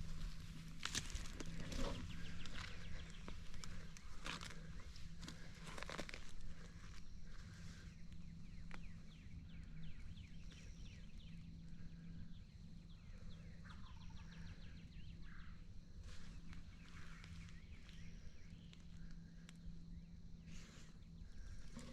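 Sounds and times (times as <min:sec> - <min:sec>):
songbirds chirping: 0:00.0 - 0:21.9
steady low hum: 0:00.0 - 0:21.9.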